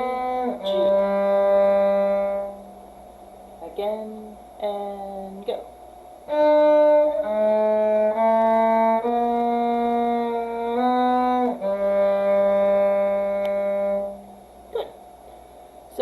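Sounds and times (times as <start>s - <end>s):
violin bowed notes: 0.0s - 2.8s, 6.3s - 14.4s.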